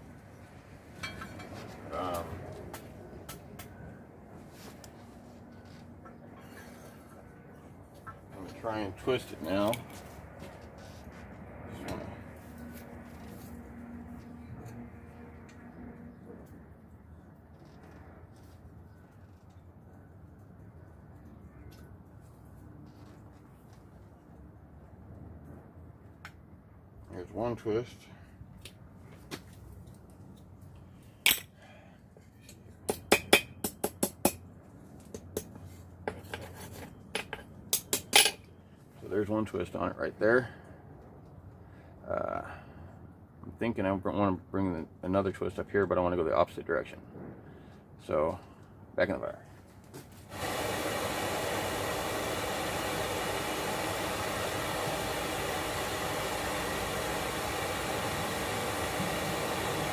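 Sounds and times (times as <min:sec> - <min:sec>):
forge air and flame rushing: 0:50.3 - 0:59.9.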